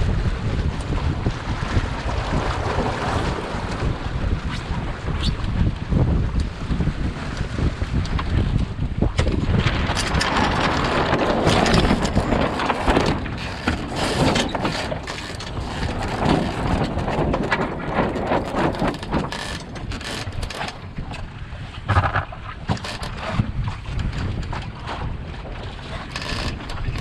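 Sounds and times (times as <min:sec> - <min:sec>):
water rushing along hull: 0:00.0 - 0:27.0
wind buffeting microphone: 0:00.0 - 0:27.0
clicks and knocks: 0:21.9 - 0:23.4.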